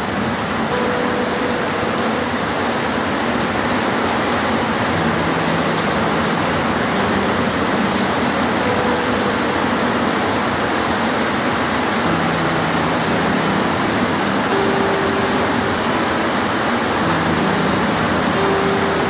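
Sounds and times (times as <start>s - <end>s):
heavy rain hiss: 0.0s - 19.0s.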